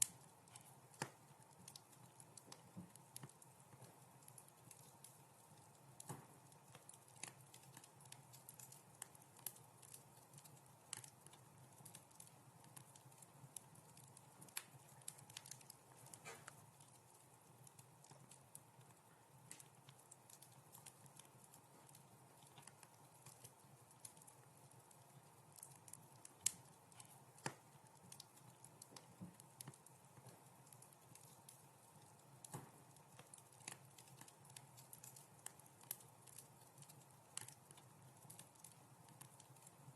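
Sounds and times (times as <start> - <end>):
quiet wood fire crackling: 0.0 - 39.9.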